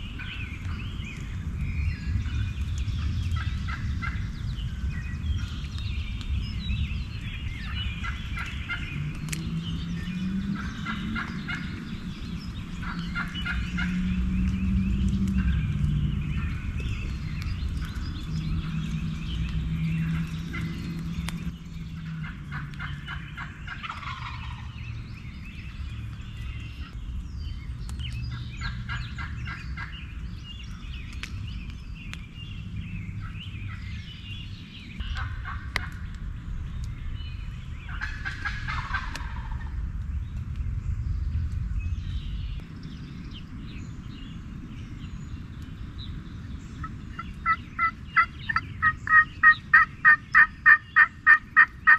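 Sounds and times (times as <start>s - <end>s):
low rumble: 0.0s - 51.6s
turkey gobbling: 22.2s - 24.7s, 35.1s - 36.0s, 37.9s - 39.7s, 46.8s - 51.9s.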